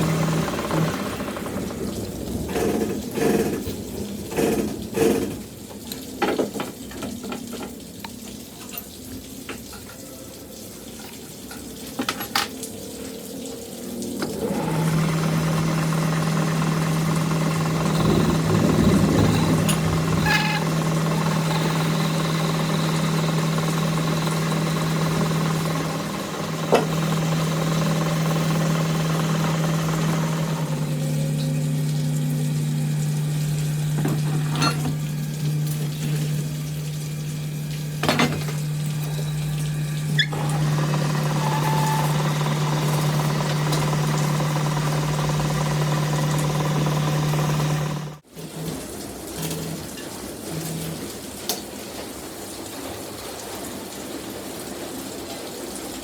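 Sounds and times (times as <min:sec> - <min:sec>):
machine motor humming: 0:00.0 - 0:03.8, 0:14.3 - 0:48.2.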